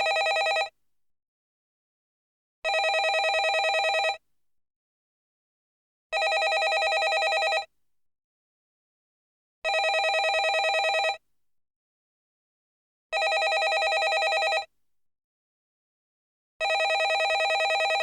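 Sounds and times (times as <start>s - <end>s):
landline telephone ringing: 0.0s - 0.7s, 2.7s - 4.2s, 6.2s - 7.7s, 9.7s - 11.2s, 13.2s - 14.7s, 16.6s - 18.0s.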